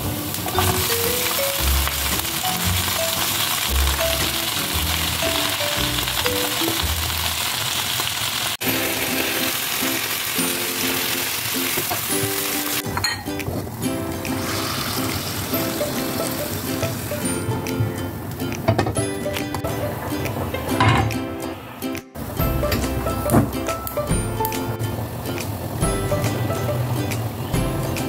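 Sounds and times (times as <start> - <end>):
greens sizzling in a frying pan: 0.0 - 12.9, 14.4 - 17.3
background music with bass beat: 22.0 - 24.9, 25.8 - 28.0.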